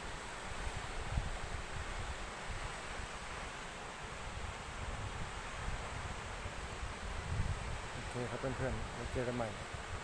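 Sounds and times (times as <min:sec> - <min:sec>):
wind buffeting microphone: 0:04.2 - 0:10.0.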